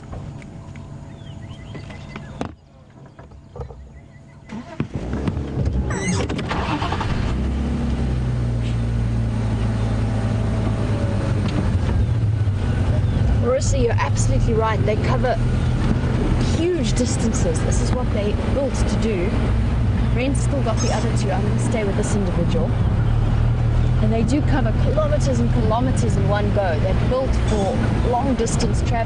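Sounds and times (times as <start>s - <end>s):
vehicle engine running: 0.0s - 2.4s, 3.4s - 29.0s
birds chirping: 0.0s - 4.8s, 11.8s - 29.0s.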